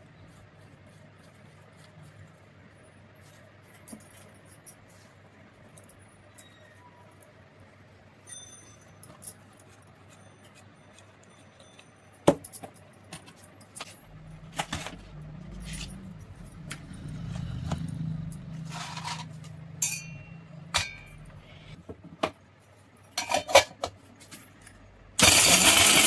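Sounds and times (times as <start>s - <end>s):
steady low hum: 13.6s - 21.8s
small metal parts clinking: 17.8s - 21.4s, 23.1s - 26.0s.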